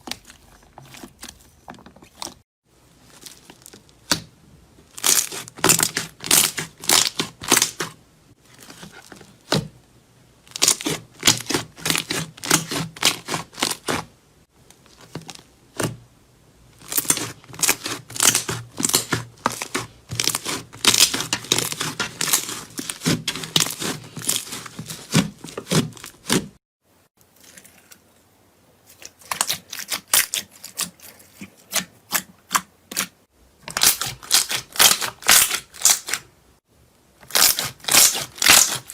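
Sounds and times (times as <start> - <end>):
slime squeezed by hand crackling: 37.3 - 38.9.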